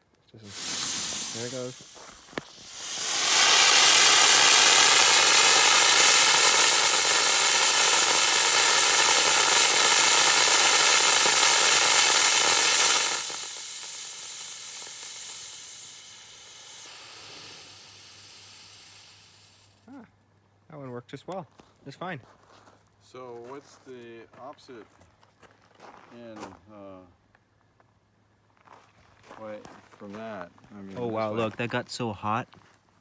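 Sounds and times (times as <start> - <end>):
rocket motor hissing: 0.5 - 19.8.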